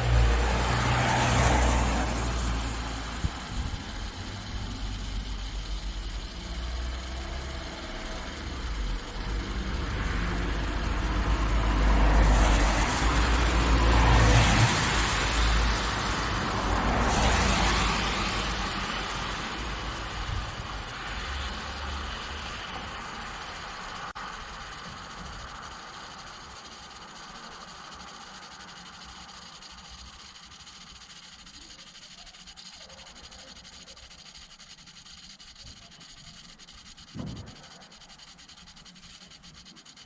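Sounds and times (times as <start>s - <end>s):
vehicle rushing past: 0.0s - 5.4s, 7.0s - 24.6s
low engine rumble: 0.0s - 40.0s.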